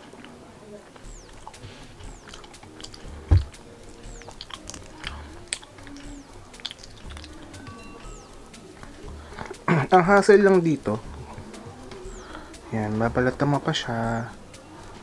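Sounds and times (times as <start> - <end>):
chewing and biting food: 0.0 - 9.7
wet mouth clicks: 0.2 - 7.7.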